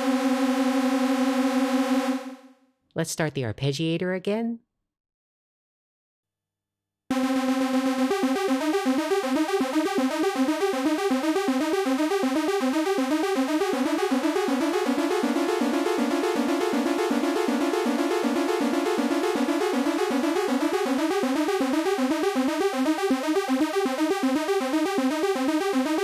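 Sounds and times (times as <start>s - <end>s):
synthesizer arpeggio: 7.1s - 26.0s.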